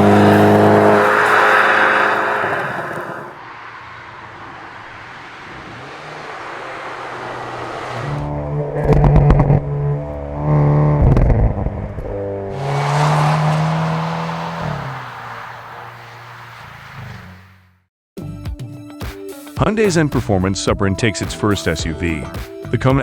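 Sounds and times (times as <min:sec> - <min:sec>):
loud exhaust crackling: 0:00.0 - 0:03.4, 0:12.3 - 0:17.4
car exhaust engine note: 0:00.0 - 0:04.0, 0:06.6 - 0:16.4.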